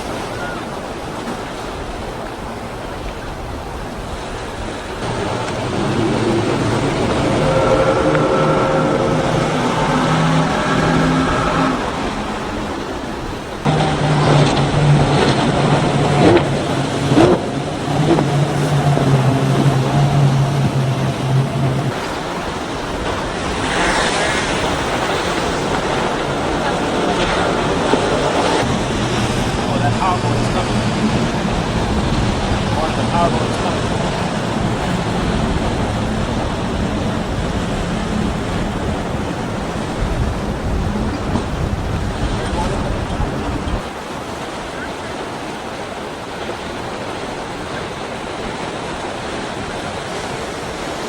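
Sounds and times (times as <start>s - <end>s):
powerboat engines droning: 0.0s - 51.0s
rushing water: 0.0s - 51.0s
surf: 0.0s - 51.0s
wind: 0.0s - 51.0s.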